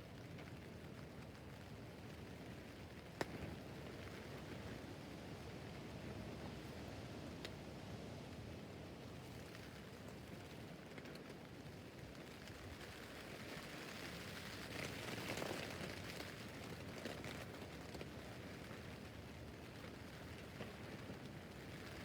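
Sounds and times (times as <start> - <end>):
rain on a tent roof: 0.0 - 22.0.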